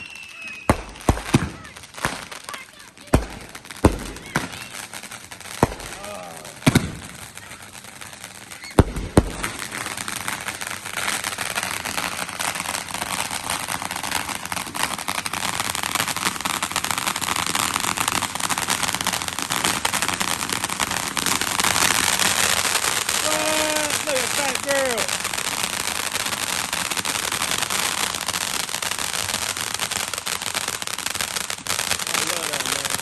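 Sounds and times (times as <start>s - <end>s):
fireworks banging: 0.0s - 33.0s
dense rapid crackling: 19.8s - 28.0s, 32.0s - 33.0s.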